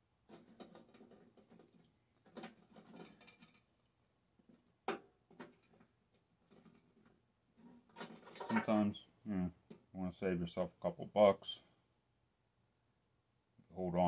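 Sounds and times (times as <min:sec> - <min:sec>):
light clicks and knocks of parts: 0:00.2 - 0:03.7, 0:04.4 - 0:08.8.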